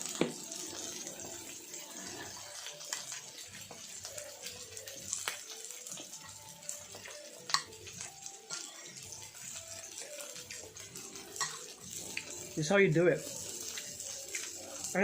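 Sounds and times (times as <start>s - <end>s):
food sizzling on grill pan: 0.0s - 15.0s
utensils clicking against pan: 2.5s - 4.2s, 5.2s - 12.4s.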